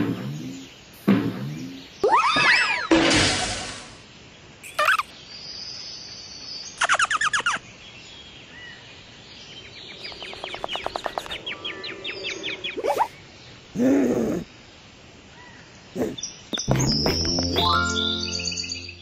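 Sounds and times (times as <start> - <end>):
bird-like chirps and trills: 4.7 - 14.5, 15.4 - 19.0.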